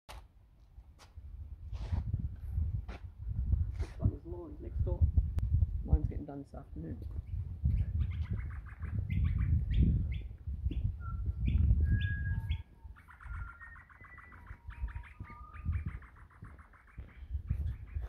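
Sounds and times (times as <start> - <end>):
microphone rumble: 1.8 - 6.2
birds chirping: 6.6 - 18.0.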